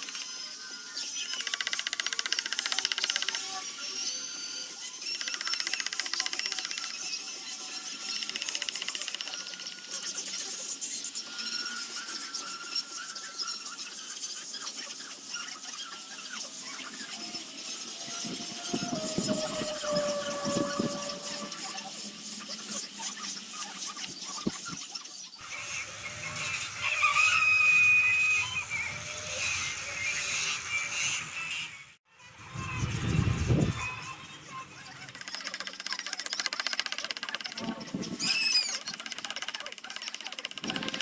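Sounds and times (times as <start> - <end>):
high-pitched whining hiss: 15.2 - 23.0.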